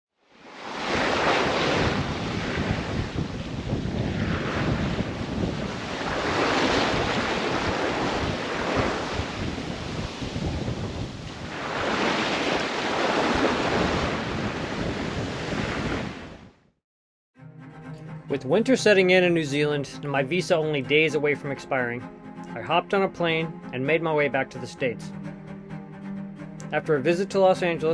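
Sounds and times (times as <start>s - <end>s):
sea waves washing: 0.3s - 16.4s
wind buffeting microphone: 0.9s - 16.5s.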